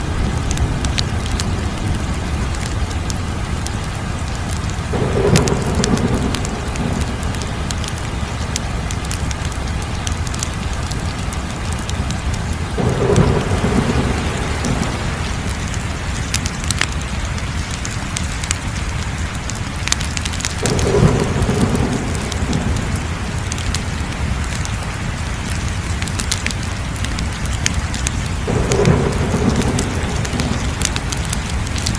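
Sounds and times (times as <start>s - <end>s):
wood fire crackling: 0.0s - 31.9s
deep rumbling swells: 4.9s - 9.8s.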